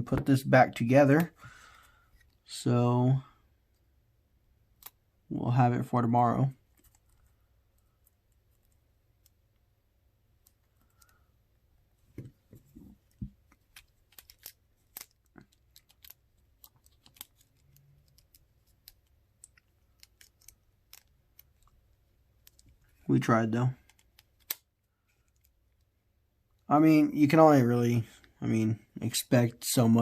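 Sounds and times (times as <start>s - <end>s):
plastic parts clicking: 13.1s - 21.8s.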